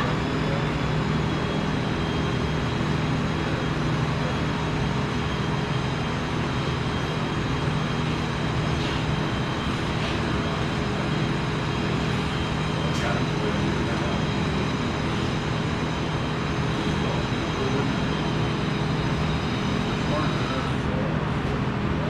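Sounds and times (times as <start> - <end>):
machinery drone: 0.0 - 22.0.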